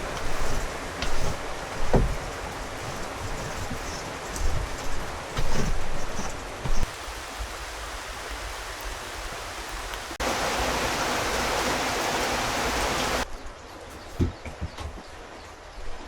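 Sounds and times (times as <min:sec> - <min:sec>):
rain falling: 0:00.0 - 0:13.3
rush of falling water: 0:06.5 - 0:13.3.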